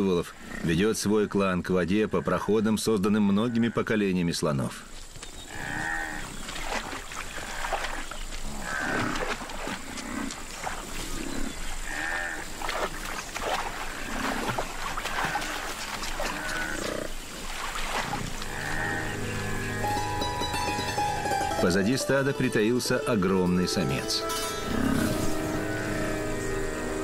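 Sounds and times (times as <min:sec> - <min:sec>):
water buffalo grunting: 0:18.1 - 0:19.9, 0:24.4 - 0:26.9.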